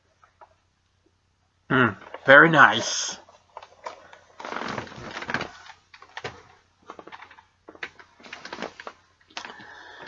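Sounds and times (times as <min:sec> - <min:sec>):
packaging rustle: 0:03.2 - 0:09.7.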